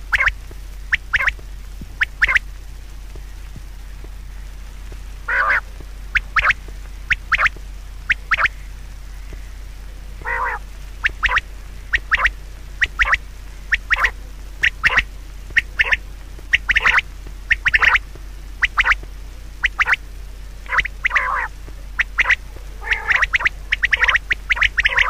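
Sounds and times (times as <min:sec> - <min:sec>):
steady low hum: 0:00.0 - 0:25.0
short sharp animal calls: 0:00.9 - 0:01.4, 0:05.3 - 0:07.5, 0:08.1 - 0:09.5, 0:10.2 - 0:18.0, 0:19.6 - 0:20.0, 0:20.7 - 0:25.0.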